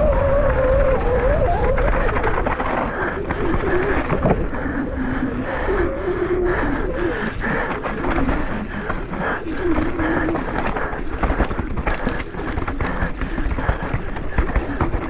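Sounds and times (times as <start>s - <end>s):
wind rumble on microphone: 0.0s - 15.0s
tyres clattering over rocks: 1.9s - 4.6s, 7.7s - 15.0s.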